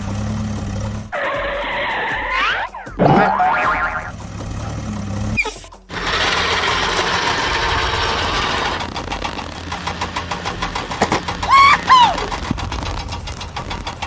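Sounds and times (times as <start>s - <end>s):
cartoon engine pulsing: 1.1s - 4.2s
pitch-bending short sound: 2.3s - 4.2s.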